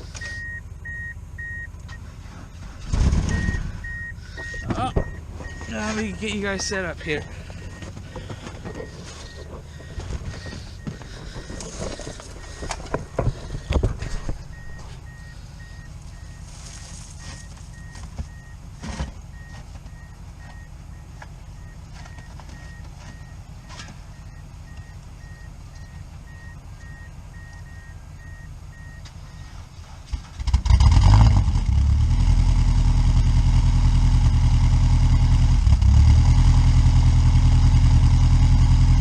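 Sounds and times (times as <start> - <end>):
low steady rumble: 0.0 - 39.0
knocks and clunks: 1.8 - 24.9.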